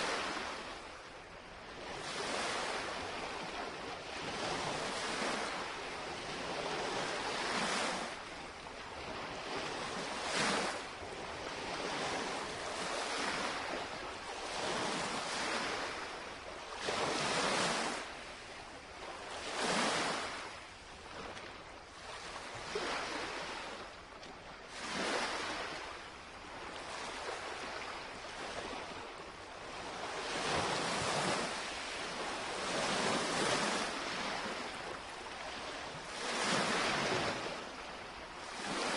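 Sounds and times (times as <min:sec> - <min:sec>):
waves lapping against shoreline: 0:00.0 - 0:38.9
wind on microphone: 0:24.8 - 0:38.9.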